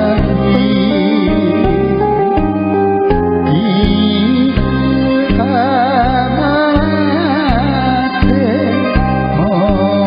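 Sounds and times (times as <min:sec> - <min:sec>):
backing track with bass beat: 0:00.0 - 0:10.0
person singing with vibrato: 0:00.0 - 0:10.0.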